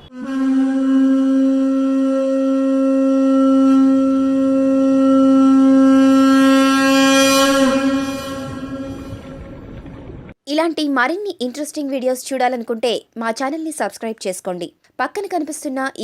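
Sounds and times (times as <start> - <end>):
conch shell blown: 0.0 - 9.7.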